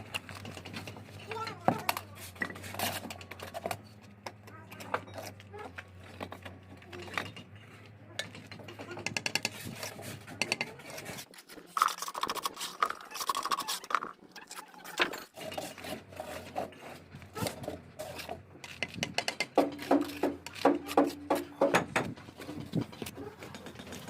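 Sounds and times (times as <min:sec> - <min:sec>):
trowel scraping mortar: 0:00.0 - 0:03.8, 0:07.6 - 0:21.6
bricks being tapped: 0:18.7 - 0:24.0.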